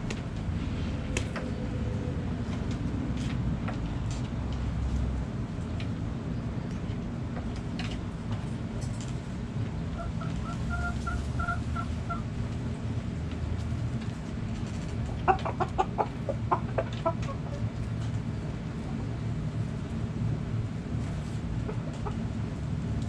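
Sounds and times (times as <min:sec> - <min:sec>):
hens clucking: 0:09.9 - 0:12.3, 0:15.0 - 0:17.8, 0:21.6 - 0:22.3.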